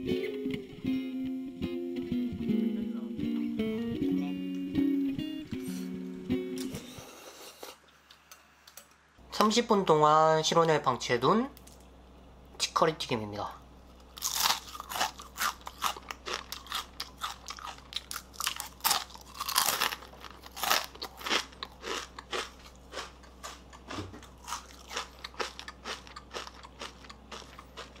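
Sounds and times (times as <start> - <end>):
chewing crisp food crunches: 14.0 - 28.0.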